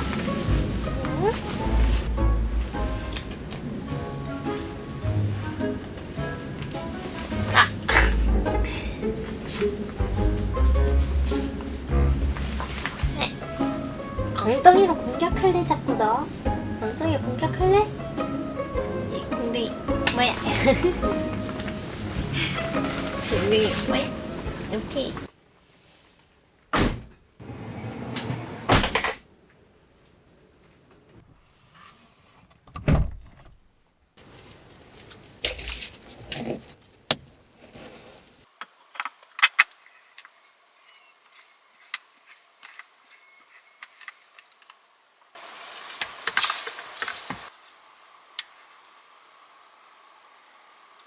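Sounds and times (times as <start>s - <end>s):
small objects clicking and clinking: 38.9s - 44.8s, 45.6s - 47.4s.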